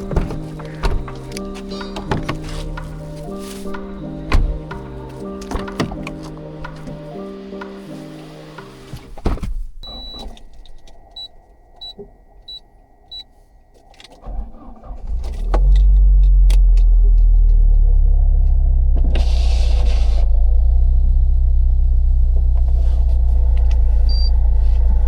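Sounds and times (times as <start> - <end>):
car engine cranking and idling: 0.0 - 25.0
car warning chime beeping: 9.8 - 14.7.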